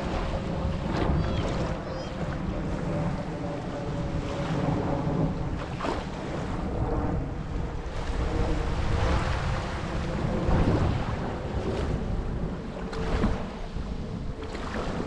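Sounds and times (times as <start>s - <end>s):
wind on microphone: 0.0s - 15.0s
surf washing onto beach: 7.8s - 13.8s.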